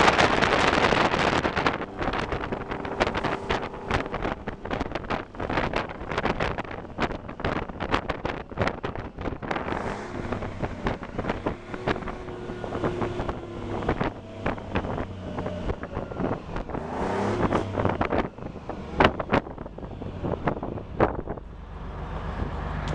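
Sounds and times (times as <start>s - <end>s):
wind buffeting microphone: 0.0s - 21.5s
diesel engine running: 0.0s - 22.9s.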